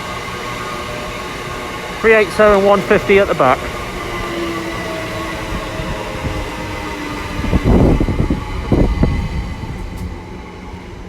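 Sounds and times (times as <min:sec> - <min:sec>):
electric train whine and rumble: 0:00.0 - 0:11.0.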